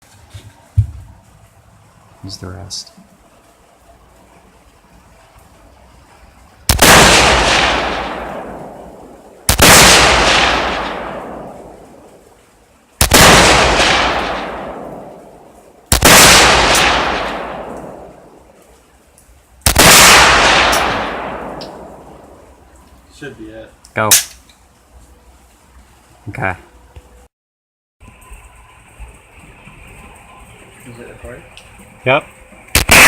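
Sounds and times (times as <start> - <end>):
rifle shots echoing: 6.7 - 12.2, 13.0 - 18.4, 19.7 - 22.4, 32.7 - 33.0.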